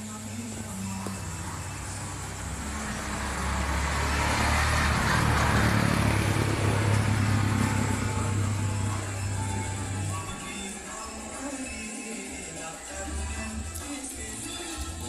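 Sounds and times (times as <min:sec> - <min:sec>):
vehicle engine humming: 0:00.0 - 0:11.5.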